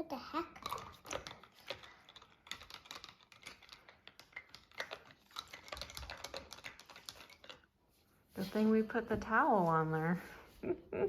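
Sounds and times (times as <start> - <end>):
plastic toy capsule rattling: 0.5 - 7.7.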